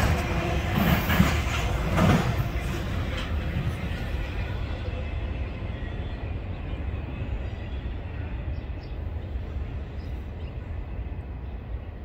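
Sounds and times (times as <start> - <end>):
freight train cars rumbling: 0.0 - 12.0.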